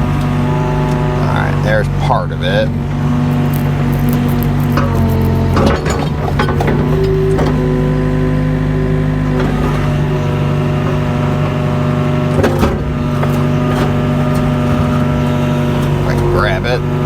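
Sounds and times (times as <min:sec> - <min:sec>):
excavator diesel engine running: 0:00.0 - 0:17.0
hydraulic whine: 0:00.0 - 0:17.0.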